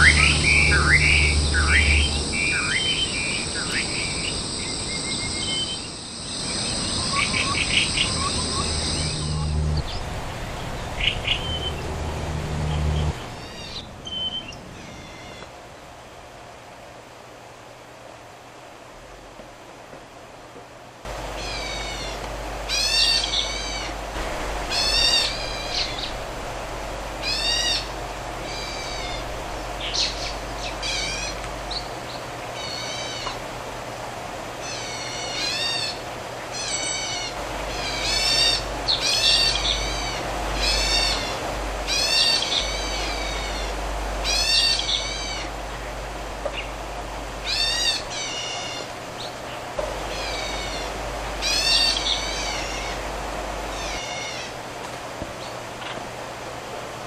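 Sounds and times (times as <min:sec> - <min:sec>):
bird calling high notes: 0:00.0 - 0:10.0
steady background hum: 0:00.0 - 0:57.0.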